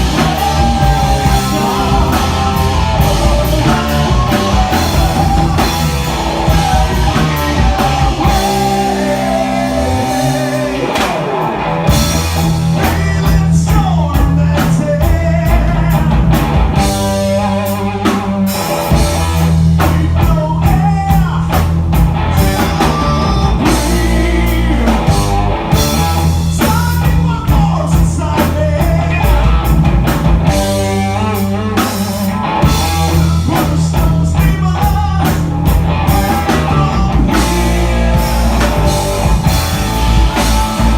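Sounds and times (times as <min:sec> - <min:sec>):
person singing: 0:00.0 - 0:12.0, 0:22.3 - 0:29.4, 0:30.6 - 0:40.9
bass guitar: 0:00.0 - 0:40.9
drum kit: 0:00.0 - 0:40.9
electric guitars: 0:00.0 - 0:40.9.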